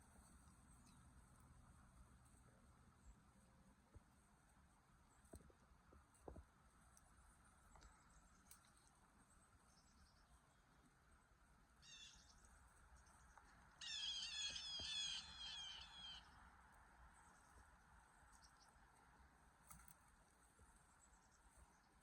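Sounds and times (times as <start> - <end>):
faint outdoor background: 0.0 - 22.0
songbird calling rapid notes: 11.8 - 12.3, 13.8 - 16.3.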